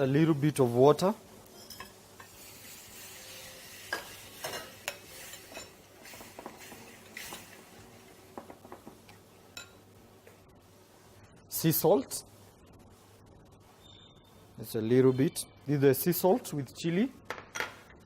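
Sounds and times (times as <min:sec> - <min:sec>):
faint sizzle: 0:00.0 - 0:17.1
spoon scraping and clinking on pan: 0:01.5 - 0:02.4, 0:03.2 - 0:07.6.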